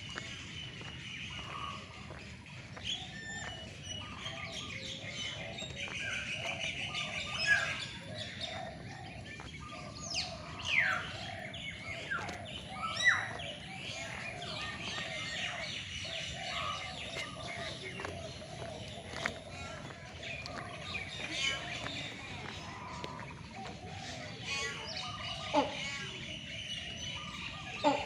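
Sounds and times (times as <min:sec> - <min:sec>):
birds chirping in chorus: 0:00.0 - 0:28.0.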